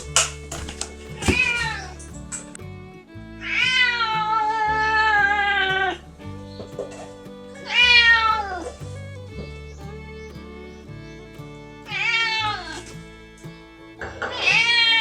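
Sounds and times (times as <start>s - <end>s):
background music: 0.0s - 15.0s
cat meowing: 1.2s - 2.0s, 3.4s - 6.0s, 6.8s - 8.8s, 11.9s - 12.8s, 14.3s - 15.0s.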